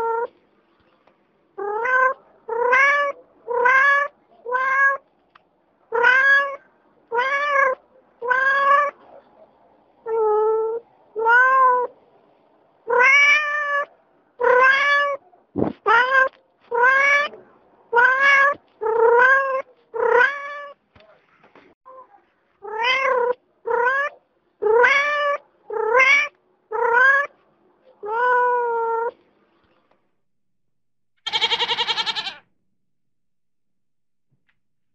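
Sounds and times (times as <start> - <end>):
cat meowing: 1.6 - 5.0, 5.9 - 9.0, 10.1 - 11.9, 12.9 - 15.2, 15.9 - 20.8, 22.6 - 27.3, 28.0 - 29.1, 31.3 - 32.5.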